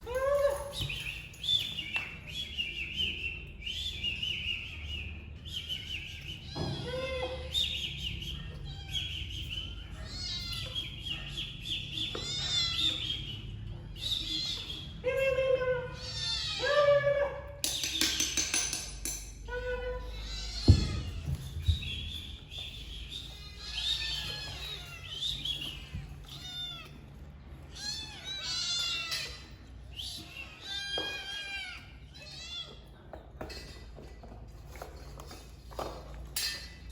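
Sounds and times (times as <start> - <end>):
kittens mewing: 9.7 - 13.1, 15.7 - 17.6, 20.0 - 21.6, 23.3 - 33.0.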